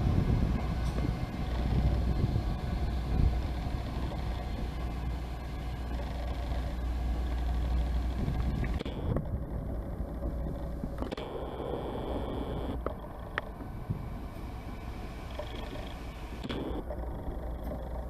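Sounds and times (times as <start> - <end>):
train engine rumbling: 0.0 - 18.0
small clicks: 10.2 - 13.7, 15.3 - 18.0.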